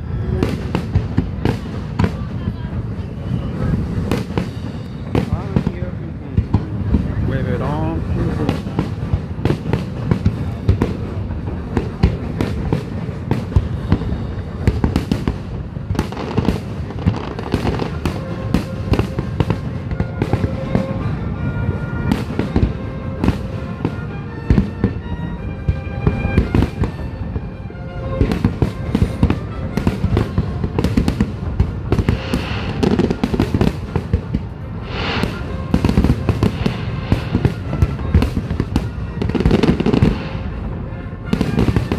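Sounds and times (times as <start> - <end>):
fireworks booms and crackles: 0.0 - 41.9.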